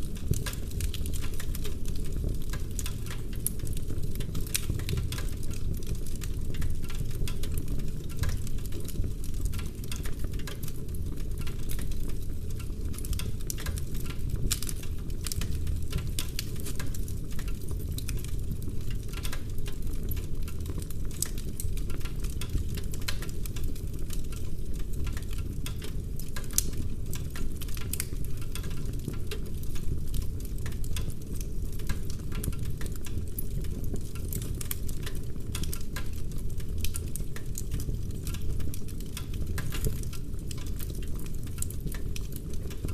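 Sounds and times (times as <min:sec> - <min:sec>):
wood fire crackling and popping: 0:00.0 - 0:42.9.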